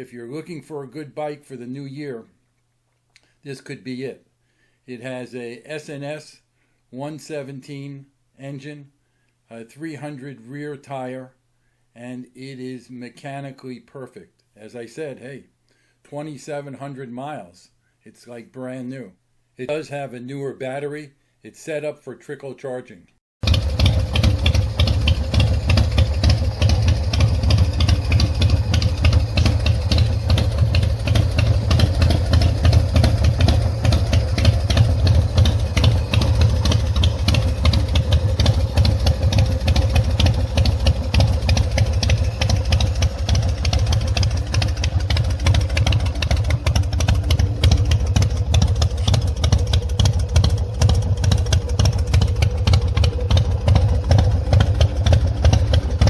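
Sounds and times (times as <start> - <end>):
motorcycle engine idling: 23.4 - 56.0.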